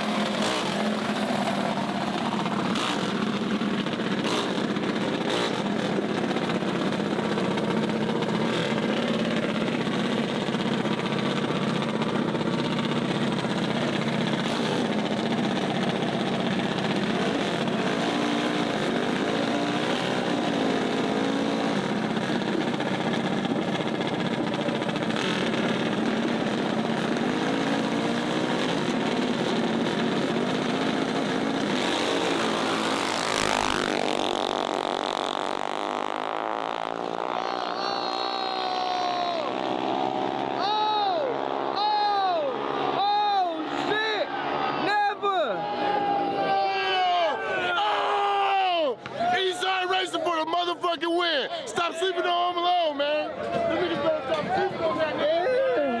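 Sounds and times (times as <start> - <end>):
mini bike engines running: 0.0 - 43.2.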